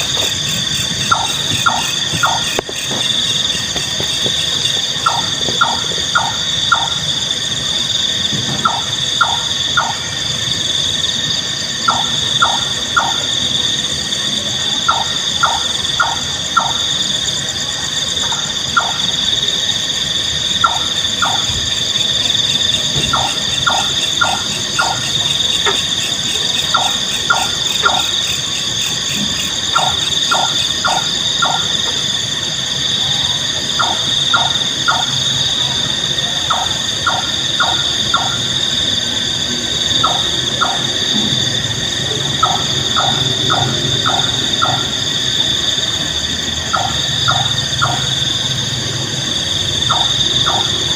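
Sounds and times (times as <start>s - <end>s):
nightjar calling: 0.0s - 7.2s, 14.8s - 17.2s, 20.5s - 31.8s, 33.7s - 35.7s, 42.4s - 45.0s, 46.7s - 48.3s, 49.8s - 50.9s
high-pitched buzzing drone: 0.0s - 50.9s.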